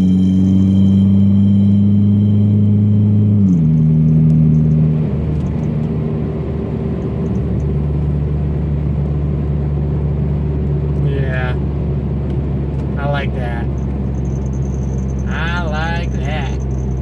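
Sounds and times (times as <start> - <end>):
car engine low drone: 0.0 - 17.0.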